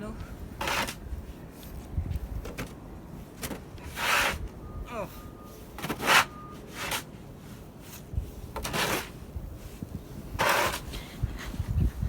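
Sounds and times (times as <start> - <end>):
shovel scraping snow: 0.6 - 1.0, 3.8 - 4.4, 5.8 - 9.2, 10.3 - 11.0.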